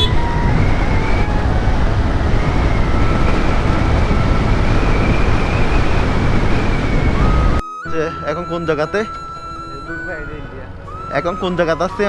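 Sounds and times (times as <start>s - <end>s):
motorcycle engine and road noise: 0.0s - 7.6s, 8.4s - 12.0s
wind rushing over microphone: 0.0s - 7.6s
faint steady whine: 0.0s - 12.0s.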